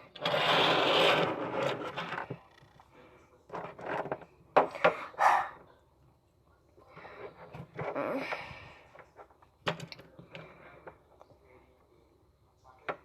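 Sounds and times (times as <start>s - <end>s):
objects rubbing on hard surface: 0.0s - 2.4s
knocks and scrapes: 0.0s - 2.5s.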